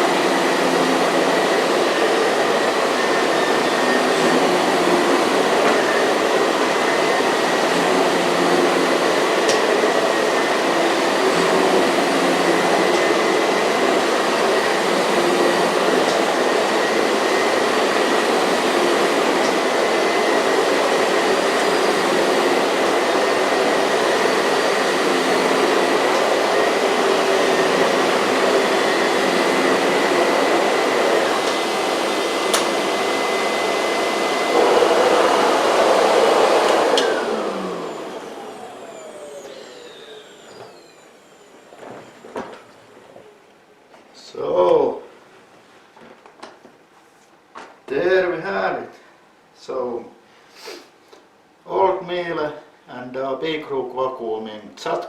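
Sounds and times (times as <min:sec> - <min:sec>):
vacuum cleaner running: 0:00.0 - 0:44.4.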